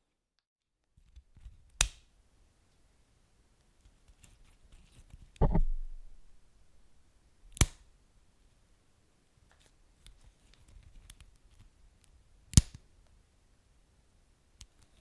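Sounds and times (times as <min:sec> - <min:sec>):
sharp pops: 0:05.4 - 0:06.4.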